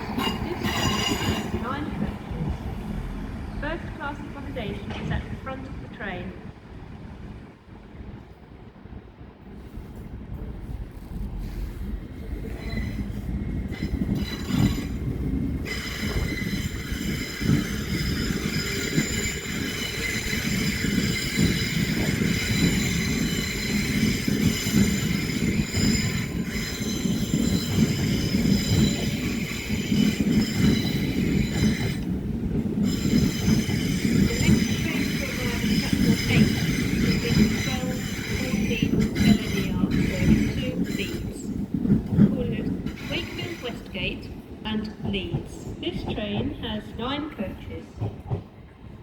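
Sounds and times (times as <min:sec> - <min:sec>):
high metallic wheel squeal: 0:00.0 - 0:01.8, 0:12.4 - 0:32.1, 0:32.8 - 0:41.4
train wheels rumbling on rails: 0:00.0 - 0:49.0.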